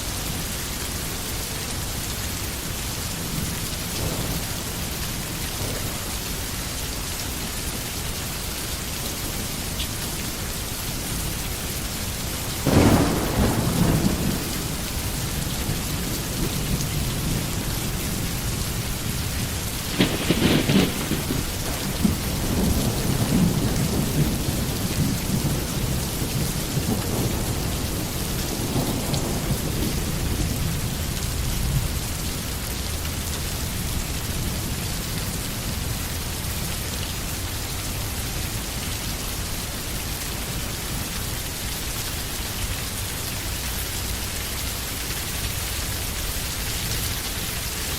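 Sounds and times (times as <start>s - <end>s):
steady rain falling: 0.0s - 47.9s
low thunder rumbling: 2.6s - 7.9s, 10.4s - 36.8s
thunder claps: 3.2s - 6.5s, 12.5s - 32.0s.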